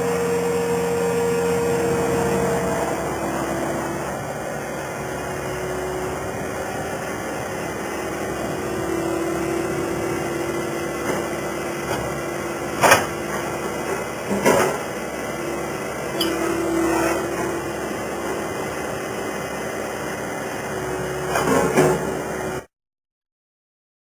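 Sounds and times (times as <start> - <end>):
skid steer loader whining: 0.0 - 22.7
sharp metal clanks: 16.2 - 16.8.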